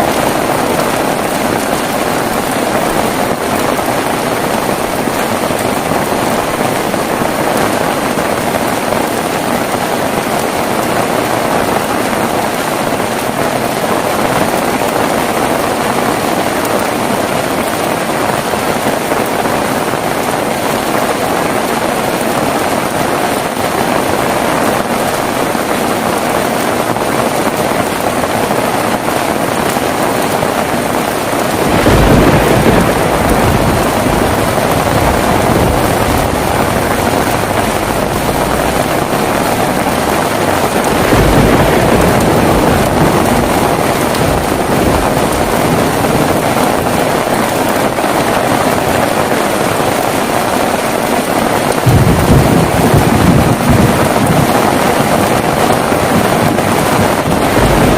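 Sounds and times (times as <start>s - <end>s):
heavy rain falling: 0.0s - 57.9s
thunder rumbling: 0.0s - 57.9s.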